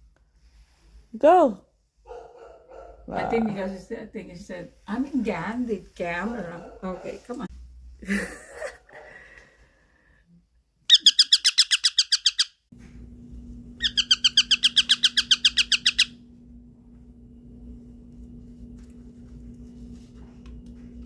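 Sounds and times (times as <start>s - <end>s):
baby parrot chirping rapidly: 10.9s - 12.6s, 13.8s - 16.2s
steady low hum: 12.7s - 21.0s.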